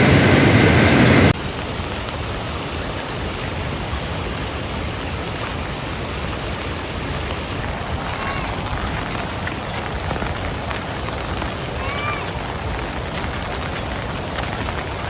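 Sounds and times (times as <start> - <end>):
loud noise: 0.0 - 1.4
steady rain hiss: 0.0 - 15.0.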